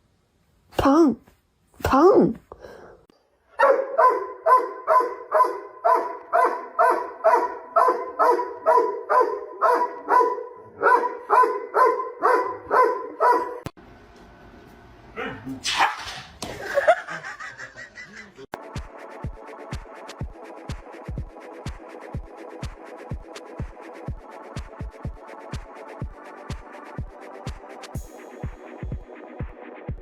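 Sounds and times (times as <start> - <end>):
dog barking: 3.6 - 13.7, 15.2 - 16.1.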